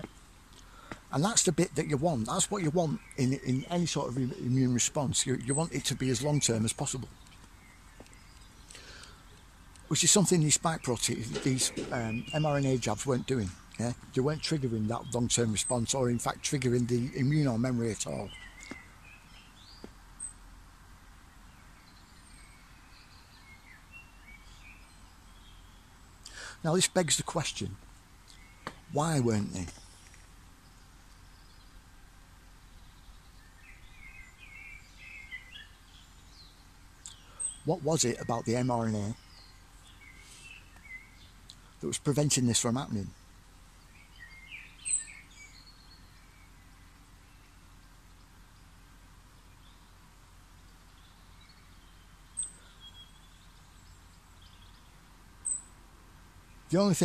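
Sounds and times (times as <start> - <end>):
faint background noise: 0.0 - 57.0
faint birds chirping: 0.0 - 57.0
outdoor background hiss: 0.0 - 57.0.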